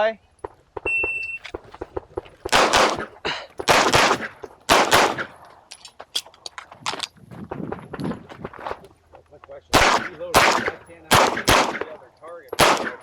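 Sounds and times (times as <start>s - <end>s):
pistol shots: 2.4s - 5.4s, 9.7s - 13.0s.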